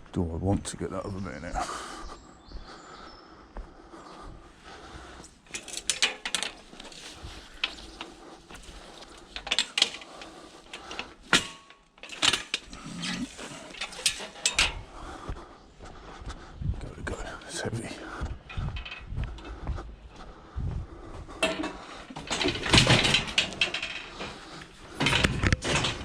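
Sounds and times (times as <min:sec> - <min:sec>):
scrap metal knocks and clanks: 0:05.5 - 0:14.9, 0:21.4 - 0:26.0.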